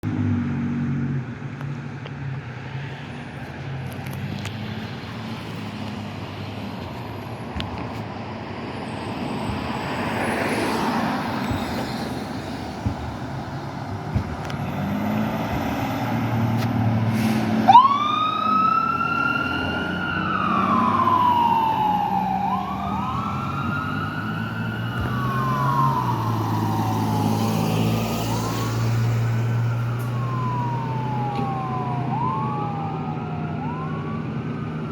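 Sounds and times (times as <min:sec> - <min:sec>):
diesel engine running: 0:01.2 - 0:18.2
siren wailing: 0:17.6 - 0:34.9.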